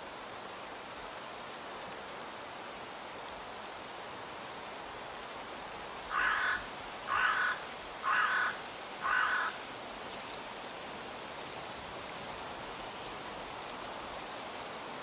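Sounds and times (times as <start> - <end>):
steady outdoor hiss: 0.0 - 15.0
bird calling: 6.1 - 9.6.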